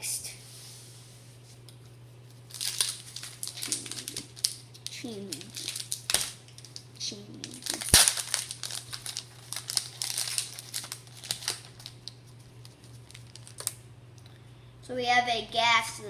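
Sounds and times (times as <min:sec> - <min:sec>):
foil wrapper crinkling: 0:02.4 - 0:13.8
sharp wrapper snap: 0:02.5 - 0:13.8.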